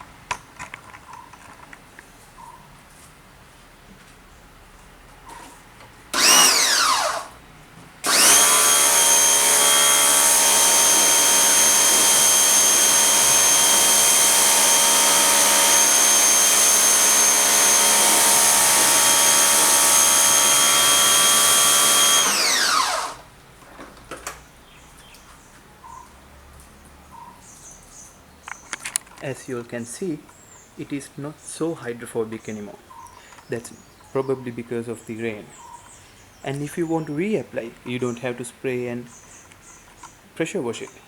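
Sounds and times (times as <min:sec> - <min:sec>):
pressure washer motor: 0:06.1 - 0:07.4, 0:08.0 - 0:23.3.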